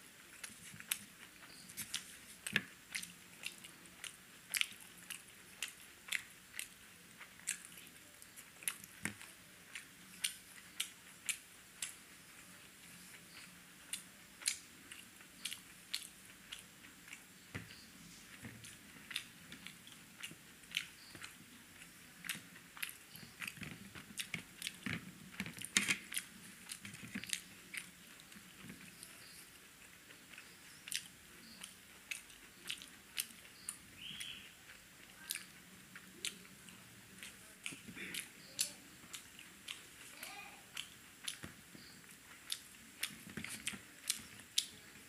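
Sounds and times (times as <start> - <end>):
person chewing with mouth clicks: 0.2 - 12.0, 12.6 - 40.1, 40.7 - 44.8.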